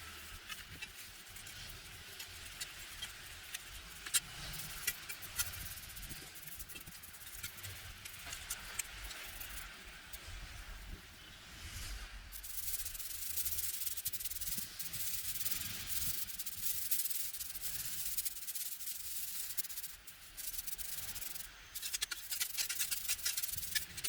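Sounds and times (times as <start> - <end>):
fine crackling clicks: 20.4 - 24.0.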